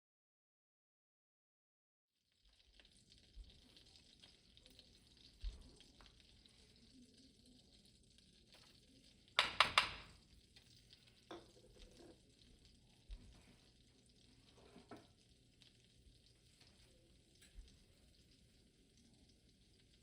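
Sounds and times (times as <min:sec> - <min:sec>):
sharp kitchen clatters: 0:09.4 - 0:10.1.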